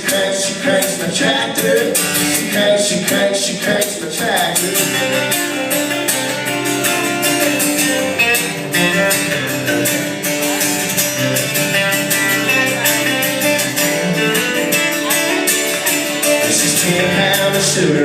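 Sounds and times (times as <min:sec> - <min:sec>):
guitar: 0:00.0 - 0:18.0
live country band: 0:00.0 - 0:18.0.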